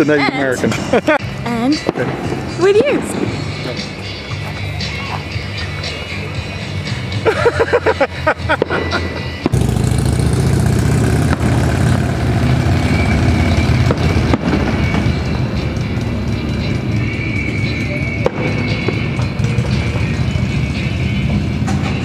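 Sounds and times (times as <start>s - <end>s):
loud music and noise: 0.0s - 22.0s
fireworks bangs: 1.7s - 4.1s, 8.5s - 10.0s, 11.2s - 11.8s, 13.7s - 15.6s, 18.2s - 20.0s.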